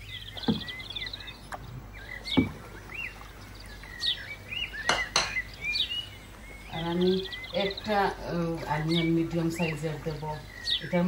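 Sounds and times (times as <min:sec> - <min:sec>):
small bird chirping and warbling: 0:00.0 - 0:11.0
sharp knocks: 0:00.4 - 0:00.8, 0:02.3 - 0:02.7.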